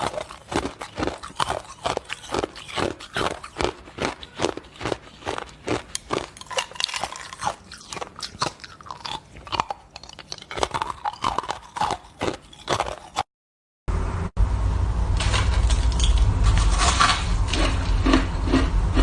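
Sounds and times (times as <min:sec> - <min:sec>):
shaved ice being chewed: 0:00.0 - 0:13.3, 0:15.2 - 0:19.0
steady noise with low rumble: 0:13.9 - 0:19.0.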